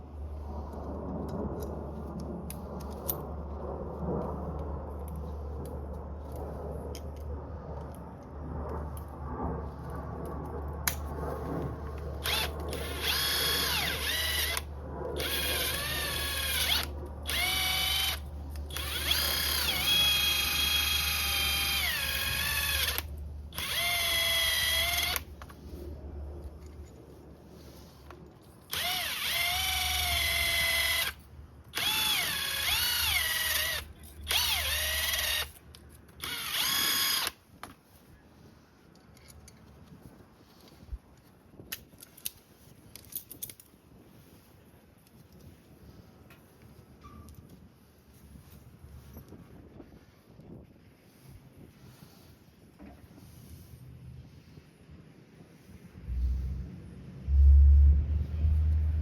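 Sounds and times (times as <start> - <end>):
power tool motor whirring: 12.2 - 25.3, 28.7 - 35.6, 36.2 - 37.4.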